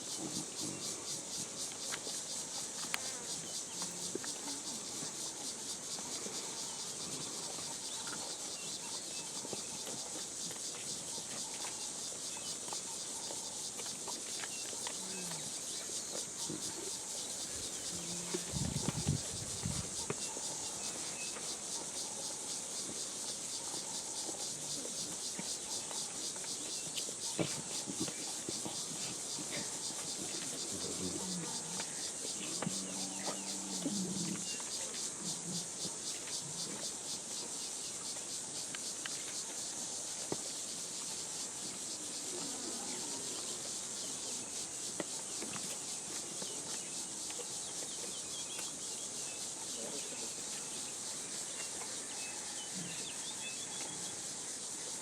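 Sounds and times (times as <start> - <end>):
insect chorus buzzing: 0.0 - 55.0.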